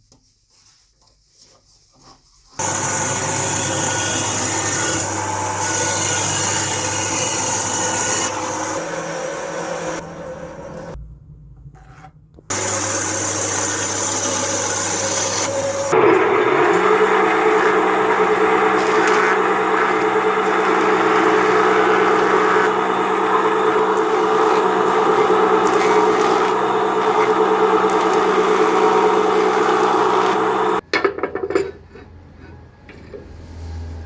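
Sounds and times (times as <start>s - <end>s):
power tool cutting wood: 2.6s - 11.0s, 12.5s - 30.8s.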